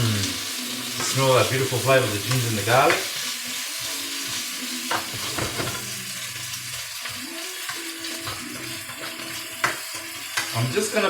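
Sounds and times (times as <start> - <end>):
garlic sizzling in hot oil: 0.0 - 11.0
knocks of stirring: 4.9 - 5.9.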